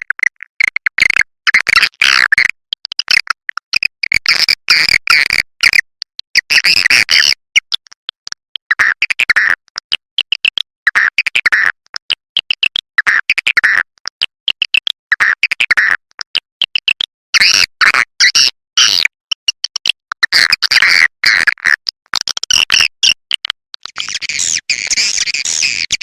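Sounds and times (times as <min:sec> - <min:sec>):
swiftlet twittering chirps: 0:24.0 - 0:26.0.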